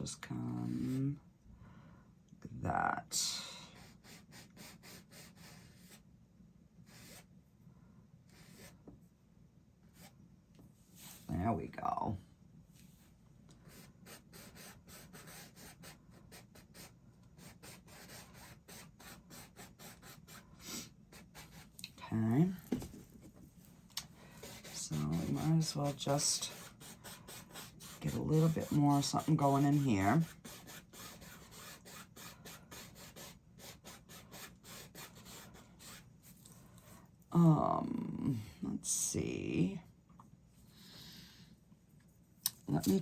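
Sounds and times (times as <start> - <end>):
paintbrush scrubbing on canvas: 24.3 - 36.4.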